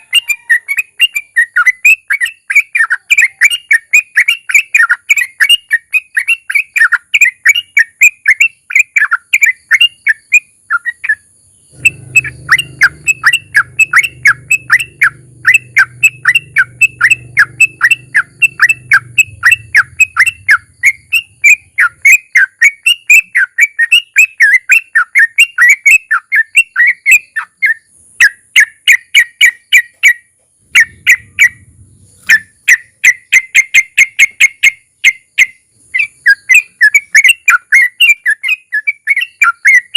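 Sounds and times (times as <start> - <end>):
bird chattering song: 0.0 - 39.9
faint low rumble: 11.6 - 22.0, 30.6 - 32.6.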